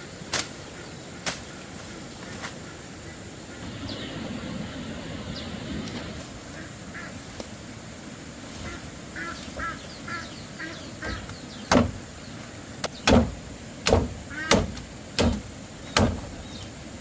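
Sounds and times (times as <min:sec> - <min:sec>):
short bird calls: 0:08.6 - 0:13.1.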